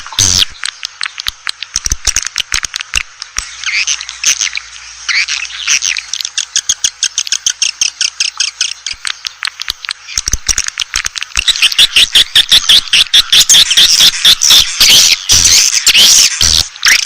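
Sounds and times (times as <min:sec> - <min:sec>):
swiftlets twittering: 0:03.4 - 0:17.0.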